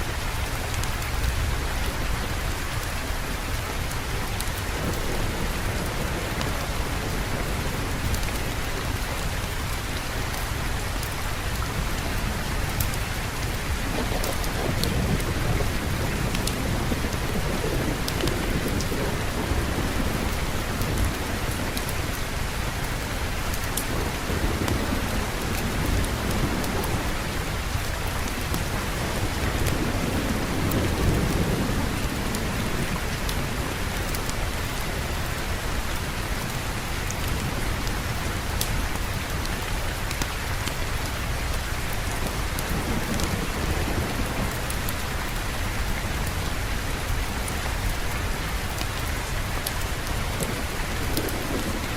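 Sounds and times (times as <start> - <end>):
heavy rain: 0.0 - 51.9
sharp rain ticks: 0.0 - 51.9
rolling thunder: 11.8 - 21.8, 42.0 - 45.7.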